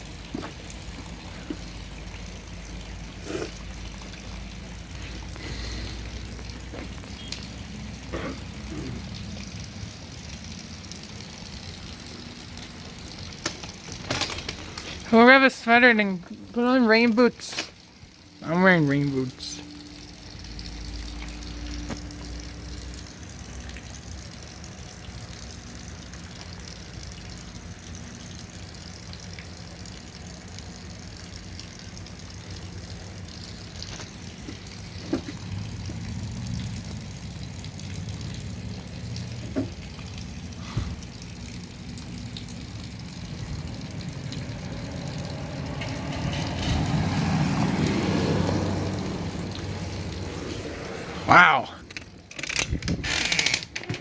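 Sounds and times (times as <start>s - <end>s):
heavy rain falling: 12.2s - 20.2s, 43.7s - 52.4s.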